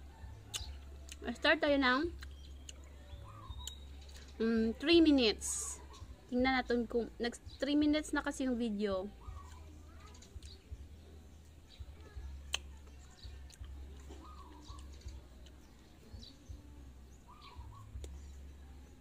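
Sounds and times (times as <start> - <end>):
faint bird chirps: 2.1 - 4.6, 9.0 - 19.0.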